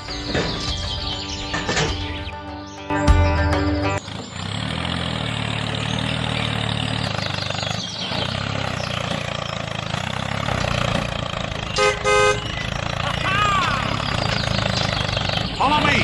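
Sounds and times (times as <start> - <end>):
small engine running: 4.0 - 16.0.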